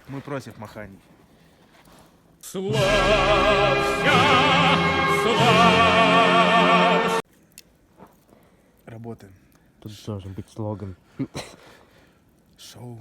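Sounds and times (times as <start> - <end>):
operatic singing: 2.5 - 7.2
orchestral accompaniment: 2.7 - 7.2.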